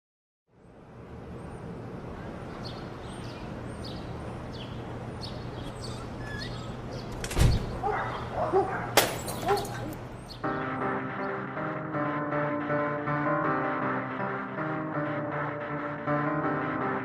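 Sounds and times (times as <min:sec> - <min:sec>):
birds chirping: 0:00.6 - 0:11.4.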